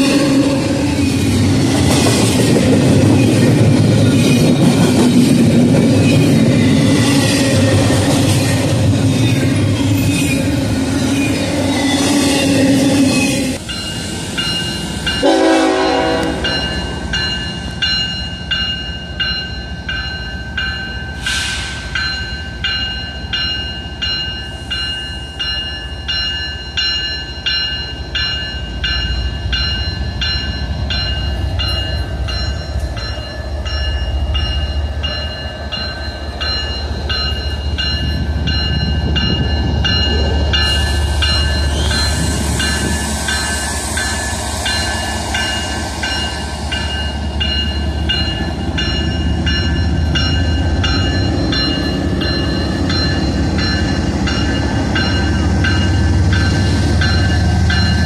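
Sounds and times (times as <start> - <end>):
train horn: 0.0 - 0.8, 15.2 - 16.7
crossing bell ringing: 0.0 - 58.0.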